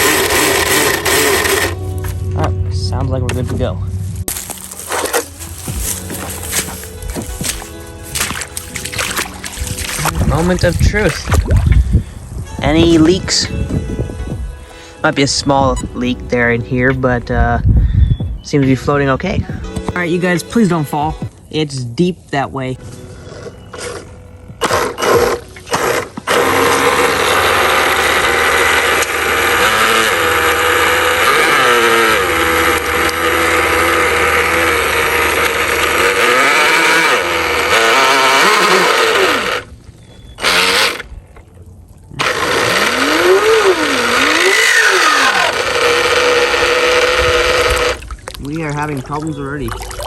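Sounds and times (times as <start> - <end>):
model boat motor whining: 0.0 - 2.1, 22.9 - 48.1.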